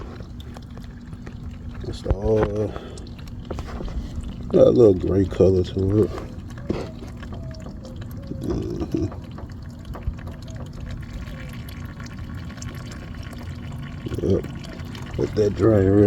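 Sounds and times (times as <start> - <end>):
oil draining into a pan: 0.0 - 16.0.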